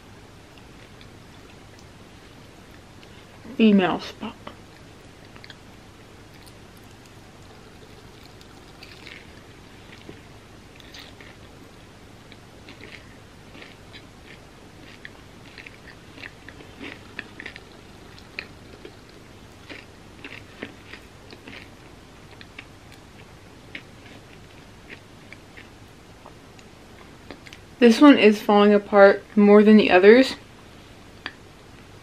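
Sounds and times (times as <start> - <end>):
chewing crunchy bar: 4.6 - 10.2, 10.8 - 11.5, 12.3 - 25.8.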